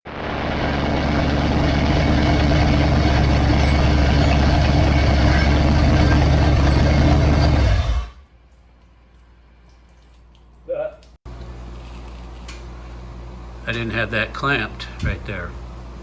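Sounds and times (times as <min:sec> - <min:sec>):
loud engine running: 0:00.1 - 0:08.2.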